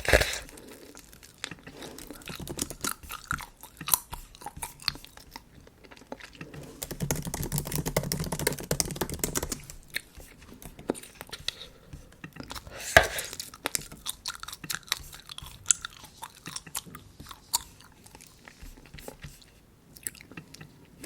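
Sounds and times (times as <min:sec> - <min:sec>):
bubble gum chewing: 0:00.0 - 0:21.0
keyboard keys clicking: 0:06.8 - 0:09.8.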